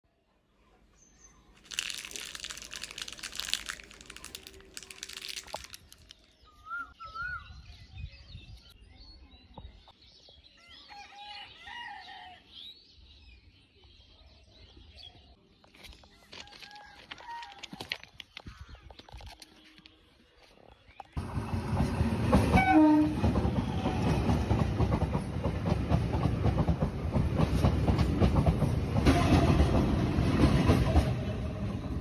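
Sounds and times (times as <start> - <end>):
small birds chirping: 0.5 - 11.2, 12.2 - 21.2
dense crackling rustle: 1.6 - 6.3.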